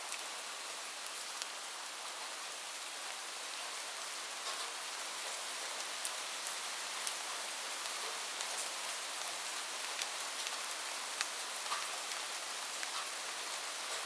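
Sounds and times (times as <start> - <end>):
steady rain falling: 0.0 - 14.0
rain drop ticks: 11.2 - 12.2.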